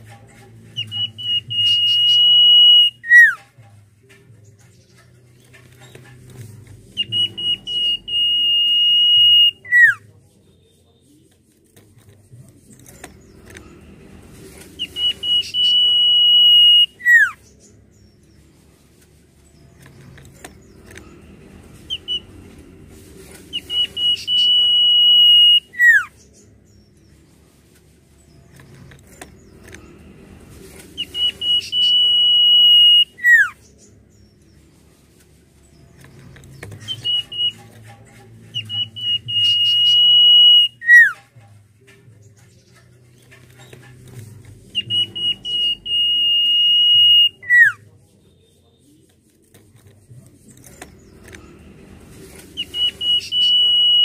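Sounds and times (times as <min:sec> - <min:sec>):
bird singing high whistle: 0:00.8 - 0:03.4, 0:07.0 - 0:10.0, 0:14.8 - 0:17.4, 0:23.6 - 0:26.1, 0:31.0 - 0:33.6, 0:36.8 - 0:37.6, 0:38.6 - 0:41.2, 0:44.8 - 0:47.8, 0:52.6 - 0:54.0.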